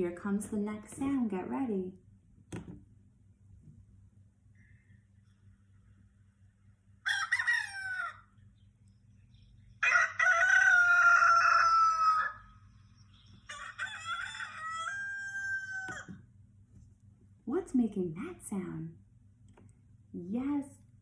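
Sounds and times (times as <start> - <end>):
rooster crowing: 7.0 - 8.3, 9.8 - 12.6, 13.5 - 16.2.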